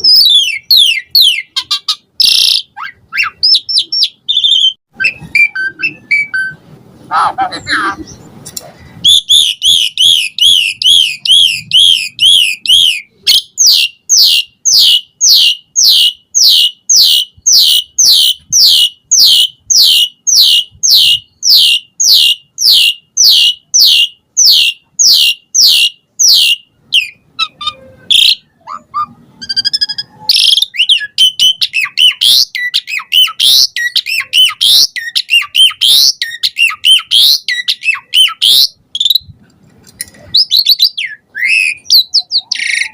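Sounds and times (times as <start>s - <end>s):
starling singing: 0.0s - 8.3s, 9.0s - 39.3s, 40.2s - 42.9s.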